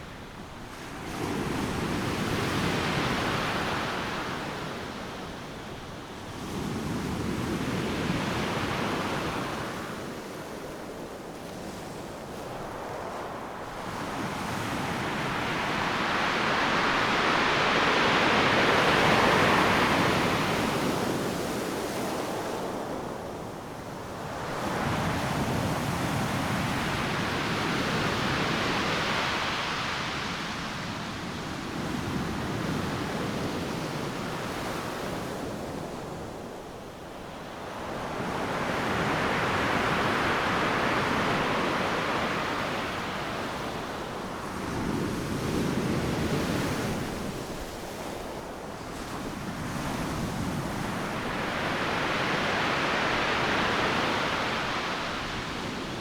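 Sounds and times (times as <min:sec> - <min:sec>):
surf breaking on beach: 0:14.0 - 0:21.2.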